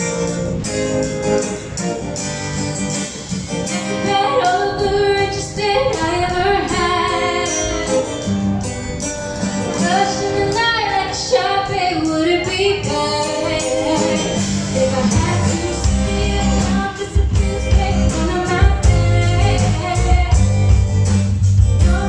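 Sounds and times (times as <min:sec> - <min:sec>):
live band playing: 0:00.0 - 0:22.0
woman singing: 0:03.6 - 0:08.3, 0:09.8 - 0:20.8, 0:21.8 - 0:22.0.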